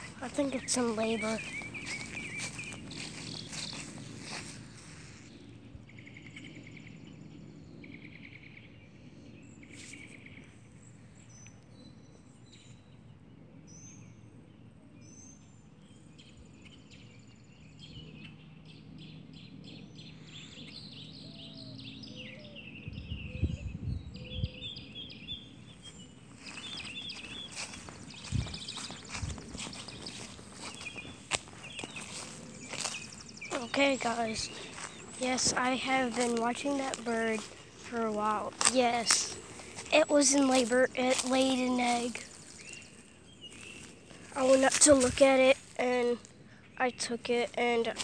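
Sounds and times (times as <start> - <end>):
birds chirping and singing: 0.0 - 48.0
low rumbles on microphone: 22.8 - 25.5, 26.5 - 38.7.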